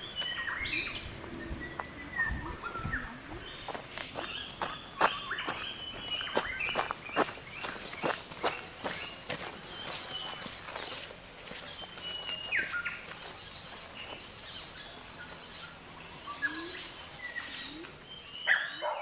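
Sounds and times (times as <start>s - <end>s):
high bird chirps: 0.0s - 11.1s
birds whistling: 0.0s - 19.0s.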